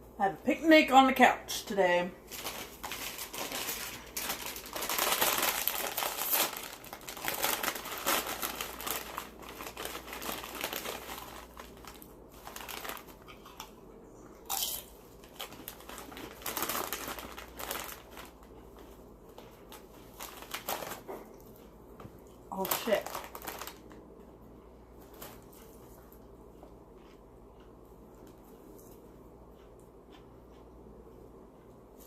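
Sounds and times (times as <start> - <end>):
food wrapping crinkling: 2.2 - 13.8, 14.5 - 21.6, 22.5 - 24.0, 25.0 - 25.9.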